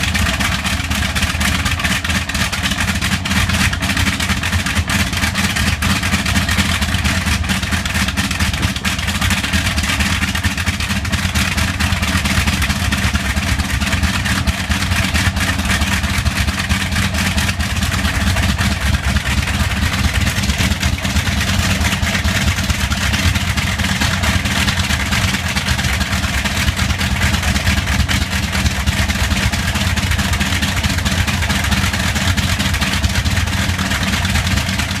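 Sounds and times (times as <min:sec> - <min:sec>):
radial aircraft engine running: 0:00.0 - 0:35.0.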